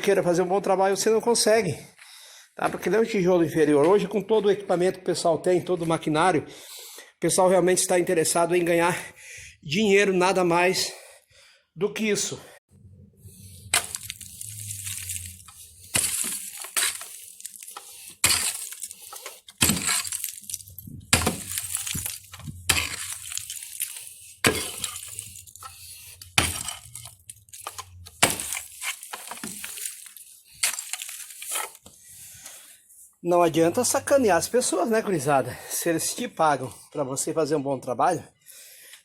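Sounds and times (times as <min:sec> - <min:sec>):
metal tool striking stony ground: 0:13.6 - 0:31.8.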